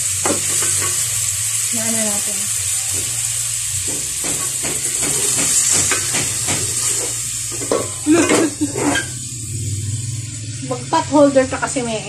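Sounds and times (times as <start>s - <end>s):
chicken sizzling in hot oil: 0.0s - 12.0s
spatula scraping a pot: 4.9s - 9.2s.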